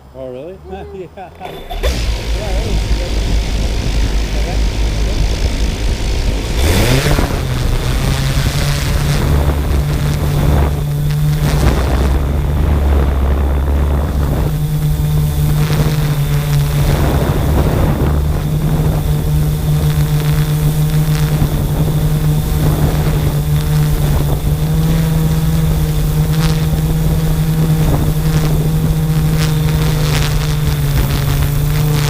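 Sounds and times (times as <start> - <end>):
drone propellers humming: 0.0 - 32.0
wind buffeting microphone: 1.4 - 32.0.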